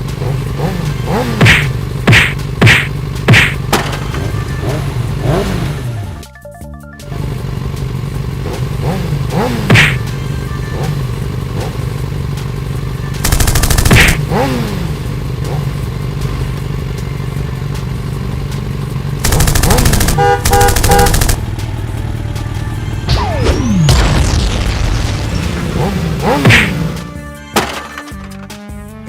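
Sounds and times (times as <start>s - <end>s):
rapid rattling clatter: 13.2s - 14.2s, 19.2s - 21.5s.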